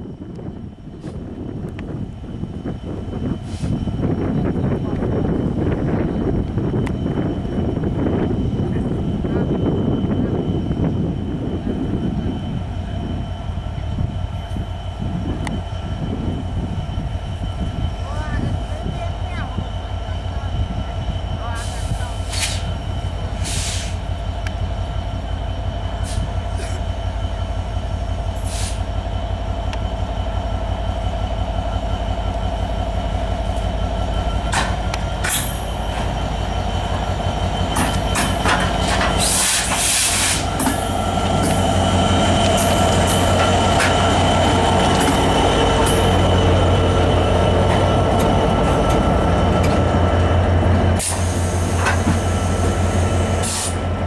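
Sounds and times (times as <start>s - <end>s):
locomotive engine rumbling: 0.0s - 54.0s
train wheels squealing: 2.4s - 54.0s
coaches clanking and clicking: 11.5s - 54.0s.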